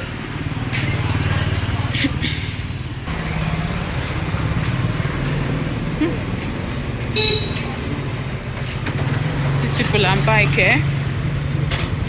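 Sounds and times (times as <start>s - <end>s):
motorbike and road traffic: 0.0s - 12.0s.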